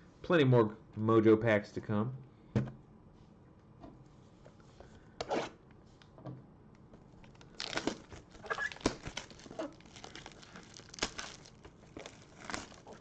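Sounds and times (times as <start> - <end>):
plastic wrapper crinkling and tearing: 7.2 - 13.0.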